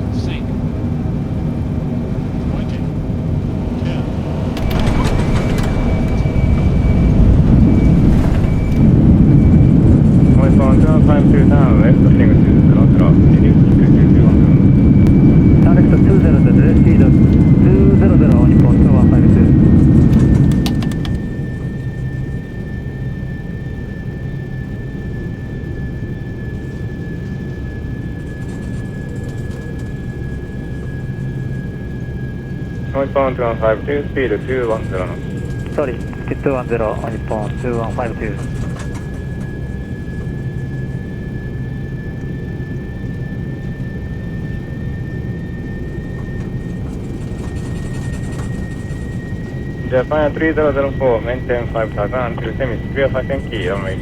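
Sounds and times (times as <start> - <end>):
high engine whine: 0.0 - 54.0
jet engine rumble: 0.0 - 54.0.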